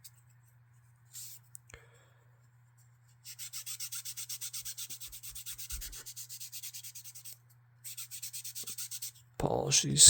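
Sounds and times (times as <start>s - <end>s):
rapid hand polishing strokes: 3.2s - 9.2s.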